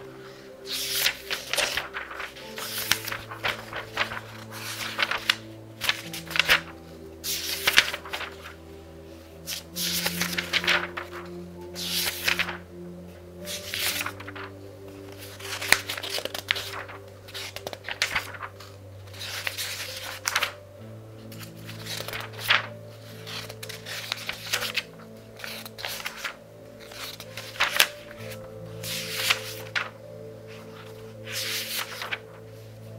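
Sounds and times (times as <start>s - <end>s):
book pages turning: 0.0s - 8.8s, 9.4s - 12.7s, 13.4s - 20.6s, 21.2s - 32.9s
soft background music: 0.0s - 32.9s.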